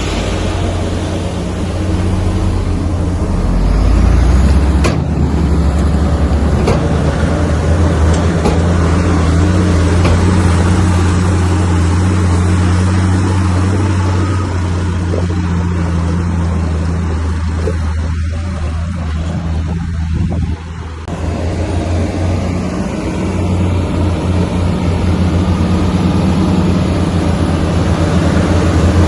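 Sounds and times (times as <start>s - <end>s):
sharp metallic clanks: 0.0s - 11.4s
heavy diesel engine under load: 0.0s - 29.0s.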